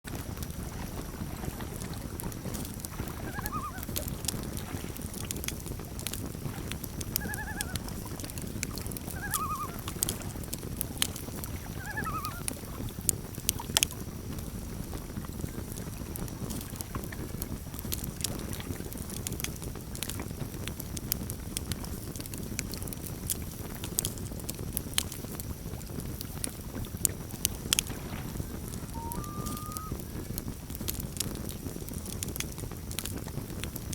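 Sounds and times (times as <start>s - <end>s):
campfire crackling and popping: 0.0s - 33.9s
loon tremolo calls: 3.2s - 4.0s, 7.1s - 8.0s, 9.0s - 10.1s, 11.5s - 12.6s, 28.8s - 30.0s.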